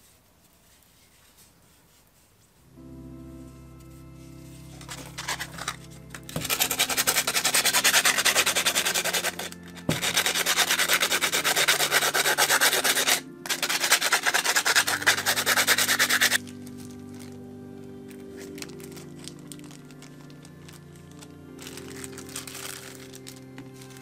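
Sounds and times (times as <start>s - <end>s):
sandpaper scraping concrete: 4.8s - 16.5s.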